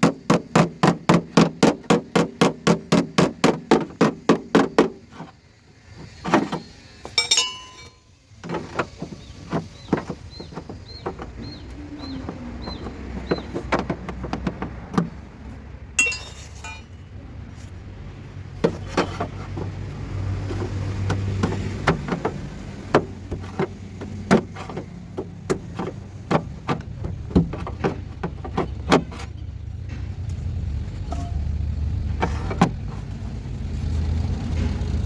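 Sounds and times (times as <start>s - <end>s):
knocks and taps on car bodywork: 0.0s - 5.3s, 8.4s - 15.2s, 20.4s - 29.3s
ringing metallic clink: 7.1s - 8.2s, 16.0s - 17.0s.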